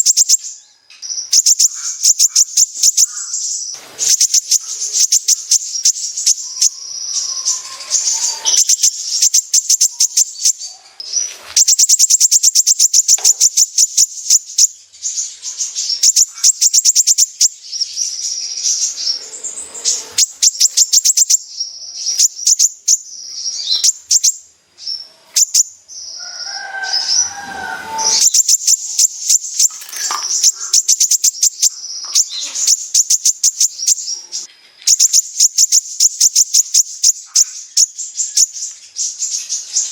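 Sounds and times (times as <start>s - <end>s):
sunbird singing high ticking notes: 0.0s - 10.8s, 11.6s - 39.9s
low warbled bird phrase: 4.0s - 10.8s, 26.0s - 32.4s.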